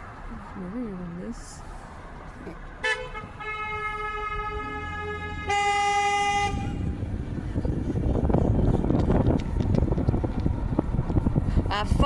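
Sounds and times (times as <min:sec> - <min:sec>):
vehicle horn steady tone: 0:02.8 - 0:07.0.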